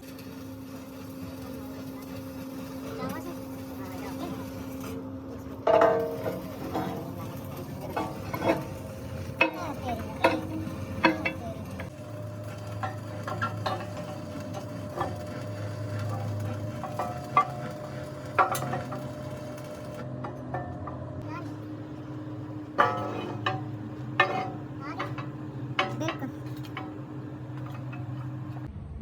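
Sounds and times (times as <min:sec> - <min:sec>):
low hum: 0:05.6 - 0:28.9
metal tools clinking: 0:05.7 - 0:28.7.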